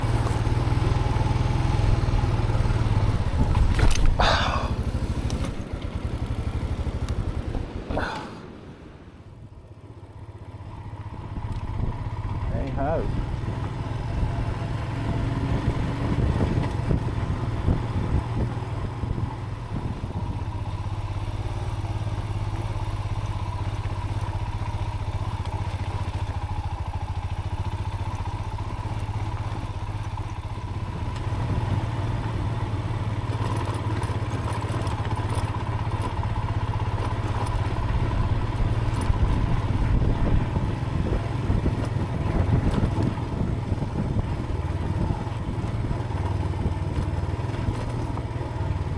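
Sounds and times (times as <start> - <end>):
motorcycle engine running: 0.0 - 48.9
light rattles: 33.1 - 39.7.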